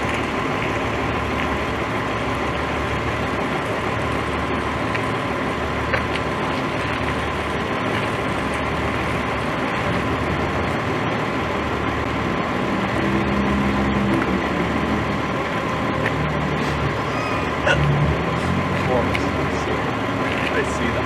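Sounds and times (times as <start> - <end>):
pitched drone: 0.0 - 21.0
vehicle engine idling: 0.0 - 21.0.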